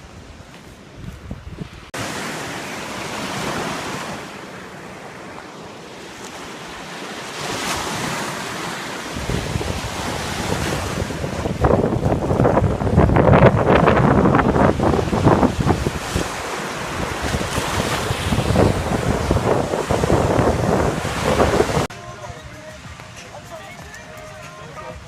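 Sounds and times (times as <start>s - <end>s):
wind blowing across microphone: 0.0s - 2.2s, 6.7s - 21.9s
lake waves rushing: 1.6s - 25.0s.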